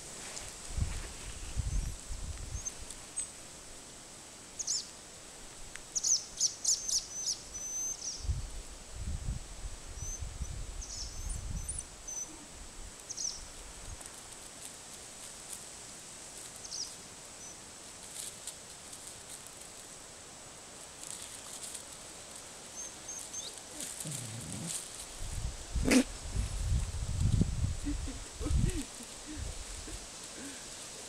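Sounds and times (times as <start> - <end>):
small birds chirping: 1.6 - 3.4, 4.6 - 4.9, 6.0 - 8.4, 10.0 - 13.5, 16.6 - 17.6, 22.7 - 24.8
low rumbling on microphone: 24.1 - 30.0.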